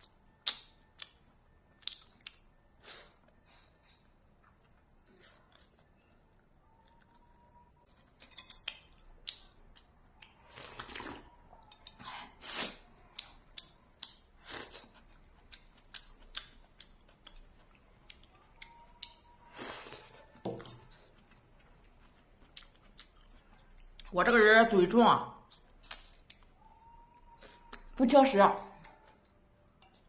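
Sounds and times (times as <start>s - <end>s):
wet chewing clicks: 0.4s - 2.6s, 13.0s - 19.4s, 20.0s - 24.1s.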